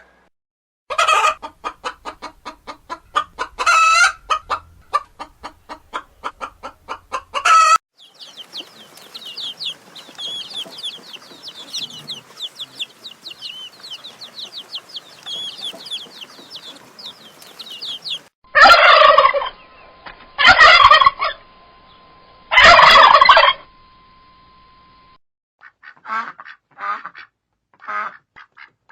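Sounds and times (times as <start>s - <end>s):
poultry clucking: 0.9s - 19.5s, 22.6s - 23.6s
loud harsh bird calls: 8.0s - 18.3s
quick high chirps: 8.0s - 18.3s.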